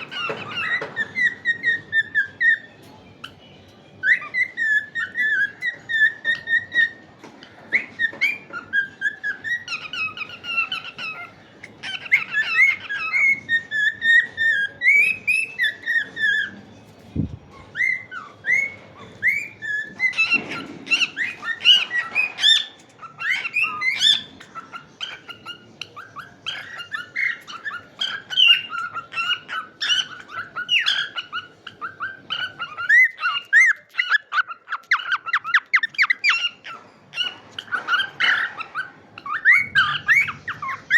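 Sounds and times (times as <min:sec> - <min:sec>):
cockatiels chirping and whistling: 0:00.0 - 0:40.9.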